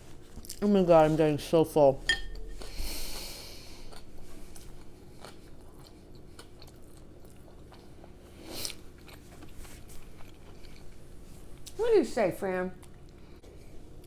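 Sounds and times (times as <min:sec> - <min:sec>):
person chewing food: 0:02.4 - 0:11.0.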